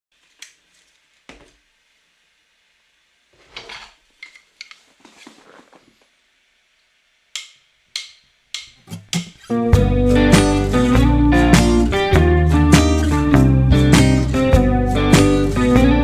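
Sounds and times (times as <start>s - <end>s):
scratchy rustles: 4.8s - 6.1s.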